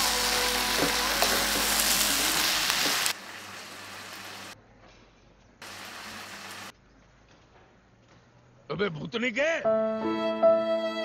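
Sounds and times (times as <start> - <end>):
vegetables sizzling in a pan: 0.0 - 4.6, 5.6 - 6.7.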